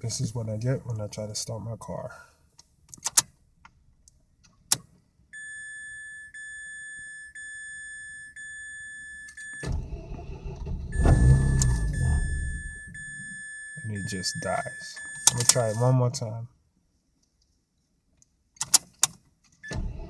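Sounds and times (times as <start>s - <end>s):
dashboard warning chime beeping: 5.3s - 16.0s, 19.6s - 20.0s
car engine cranking and rumbling: 8.3s - 15.8s, 19.6s - 20.0s
click: 11.0s - 12.0s, 15.0s - 15.6s, 18.6s - 19.6s.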